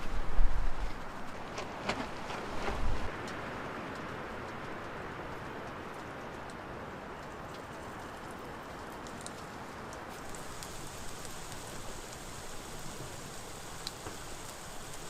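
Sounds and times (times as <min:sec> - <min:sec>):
dough crackling in hot grease: 0:07.3 - 0:15.0
grease sizzling in a pan: 0:10.1 - 0:15.0.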